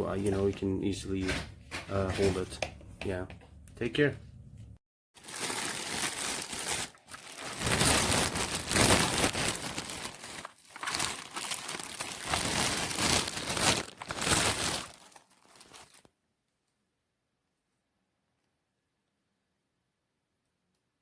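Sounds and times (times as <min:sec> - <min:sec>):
crinkling rustling noise: 0:05.2 - 0:16.1.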